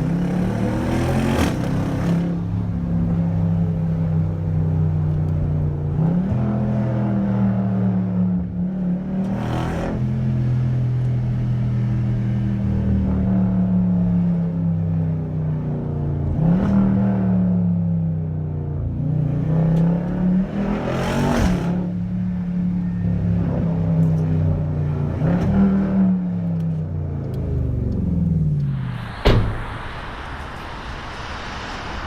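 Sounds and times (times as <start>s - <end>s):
loud engine revving: 0.0s - 2.5s.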